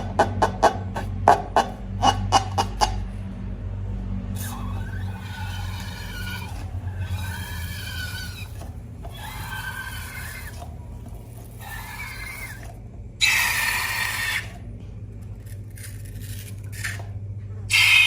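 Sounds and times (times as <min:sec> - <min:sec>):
low steady hum: 0:00.0 - 0:17.8
rubber balloon squealing: 0:04.4 - 0:14.6, 0:17.7 - 0:18.0.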